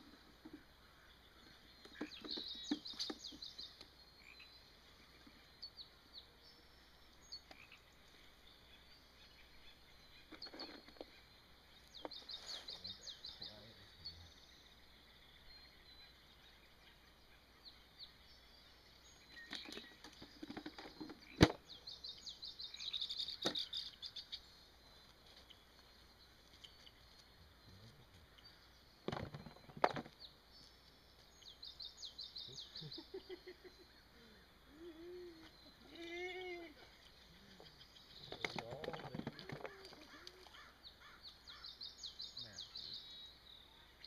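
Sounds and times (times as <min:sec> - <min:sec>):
sharp clicks and knocks: 0:38.2 - 0:40.4.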